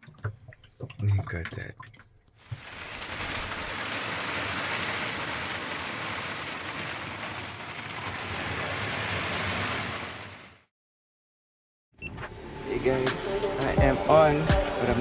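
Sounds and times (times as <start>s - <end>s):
heavy rain pouring: 2.4s - 10.6s.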